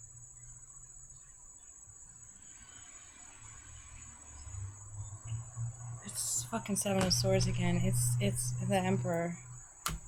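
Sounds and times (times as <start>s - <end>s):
low hum: 4.4s - 10.0s.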